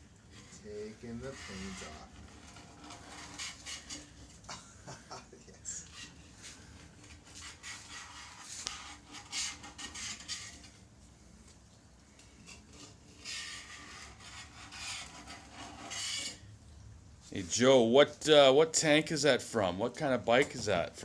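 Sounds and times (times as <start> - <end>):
scraping paint off metal tank: 0.0 - 4.5, 5.6 - 16.6.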